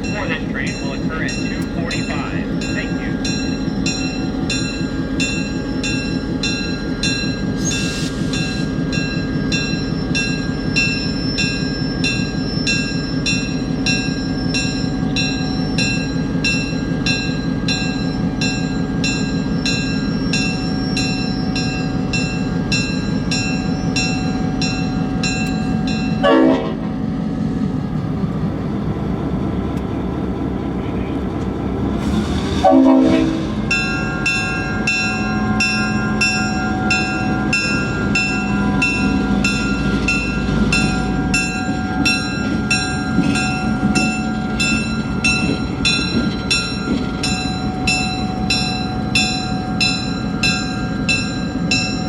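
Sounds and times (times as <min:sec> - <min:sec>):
locomotive bell ringing: 0:00.0 - 0:27.1, 0:32.7 - 0:52.0
diesel locomotive idling: 0:00.0 - 0:52.0
air horn blast: 0:26.2 - 0:26.8, 0:32.6 - 0:33.5.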